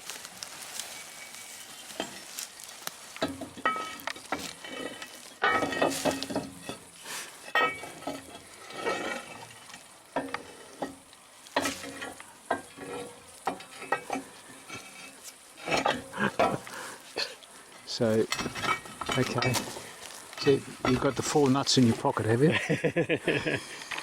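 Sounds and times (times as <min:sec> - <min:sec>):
crackling rustle: 0:00.0 - 0:24.0
small metal parts clinking: 0:18.0 - 0:21.4.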